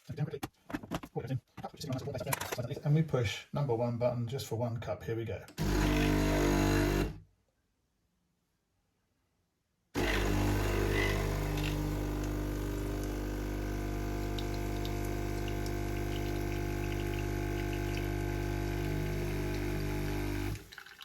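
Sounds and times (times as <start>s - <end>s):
espresso machine pump humming: 5.6s - 7.1s, 10.0s - 20.7s.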